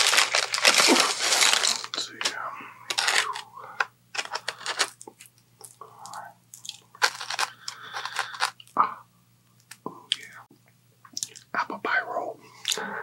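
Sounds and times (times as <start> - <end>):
crunchy food chewing: 4.2 - 8.8.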